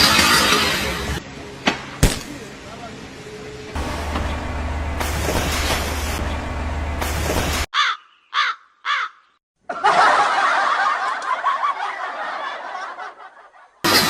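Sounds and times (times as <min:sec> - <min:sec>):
group of people laughing: 0:09.6 - 0:13.9.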